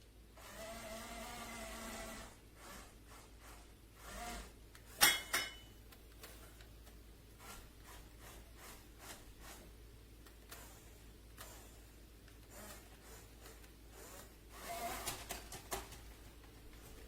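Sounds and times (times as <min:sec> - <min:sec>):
toy electric motor whining: 0:00.4 - 0:04.6, 0:07.4 - 0:09.7, 0:10.5 - 0:15.7.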